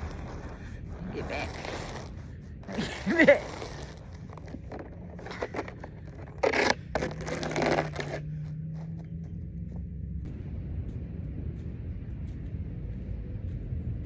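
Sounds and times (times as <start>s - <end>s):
scraping on icy snow: 0.0s - 9.0s
low steady hum: 0.0s - 14.0s.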